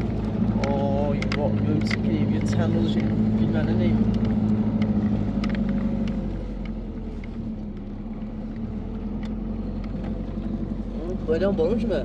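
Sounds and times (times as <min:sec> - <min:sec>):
truck engine humming: 0:00.0 - 0:12.0
light clicks and rattles: 0:00.5 - 0:07.9.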